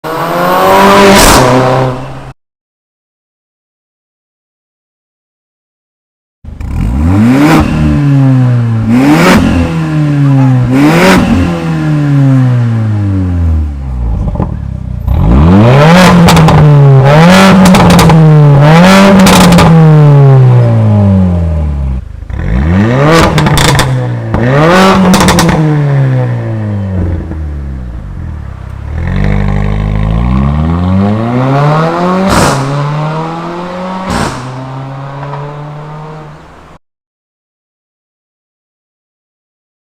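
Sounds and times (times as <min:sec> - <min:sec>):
car engine revving: 0:00.0 - 0:02.3, 0:06.5 - 0:36.8
exhaust cracks and pops: 0:23.3 - 0:24.0.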